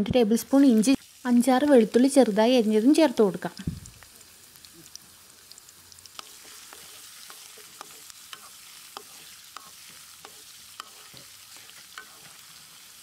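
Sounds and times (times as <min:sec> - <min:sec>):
garlic and ginger sizzling in oil: 0:00.1 - 0:13.0.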